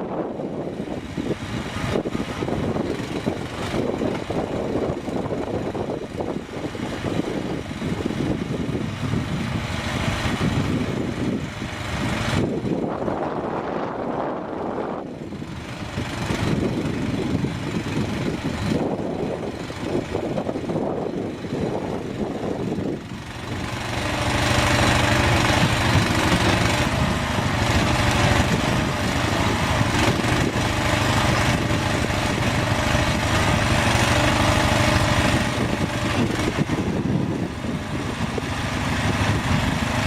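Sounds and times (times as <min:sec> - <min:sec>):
quad bike engine running: 0:00.0 - 0:40.0.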